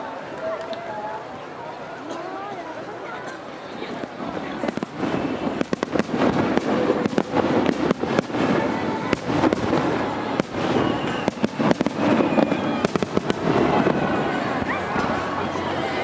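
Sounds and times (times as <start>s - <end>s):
firework shells bursting: 4.6s - 15.3s.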